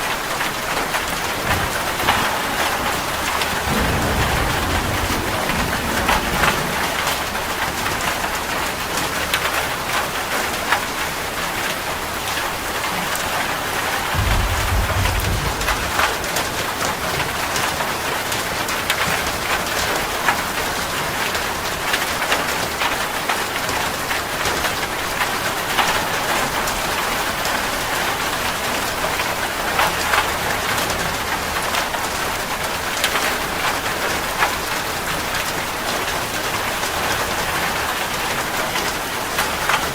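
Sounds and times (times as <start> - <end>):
rain drops tapping on surface: 0.0 - 39.9
short low rumble: 1.4 - 8.4, 14.0 - 16.8.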